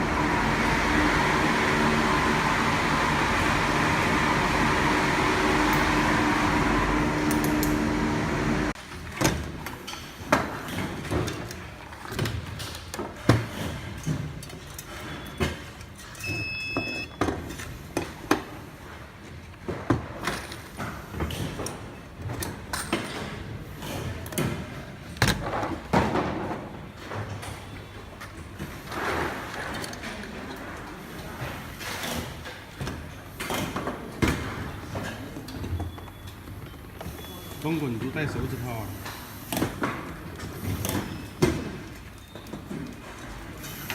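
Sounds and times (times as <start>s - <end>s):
machine droning hum: 0.0s - 8.8s.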